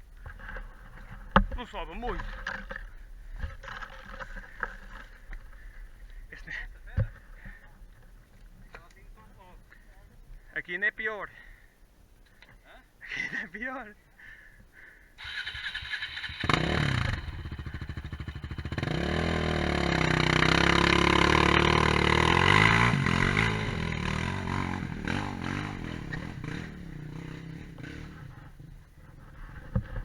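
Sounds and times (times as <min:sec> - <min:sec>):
quad bike engine revving: 0:15.2 - 0:28.8.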